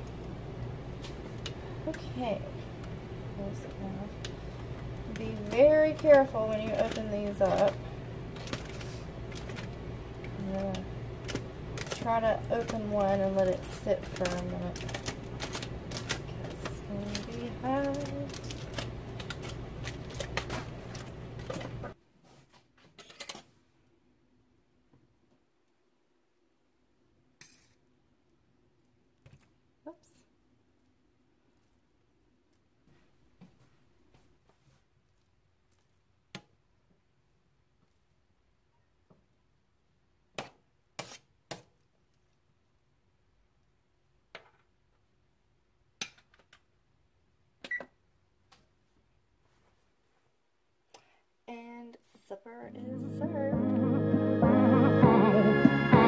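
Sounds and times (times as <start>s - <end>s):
steady low hum: 0.0s - 22.0s
foil crinkling: 5.1s - 21.8s.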